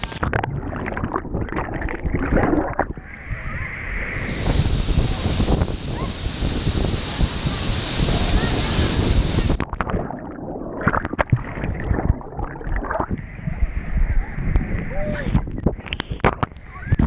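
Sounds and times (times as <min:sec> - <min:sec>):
waterfall rushing: 0:02.4 - 0:09.6.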